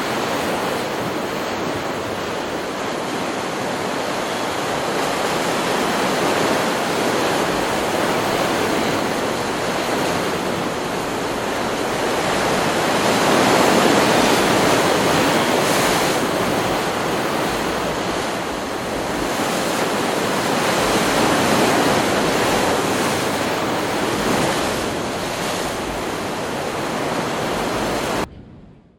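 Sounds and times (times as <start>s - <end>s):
ocean waves breaking: 0.0s - 28.7s.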